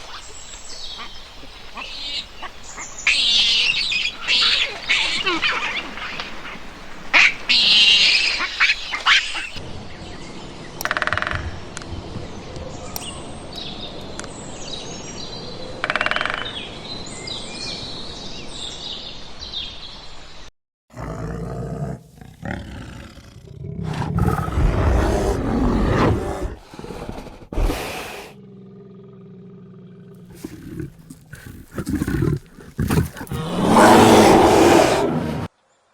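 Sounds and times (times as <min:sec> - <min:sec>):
big cat growling and roaring: 0:20.9 - 0:35.5.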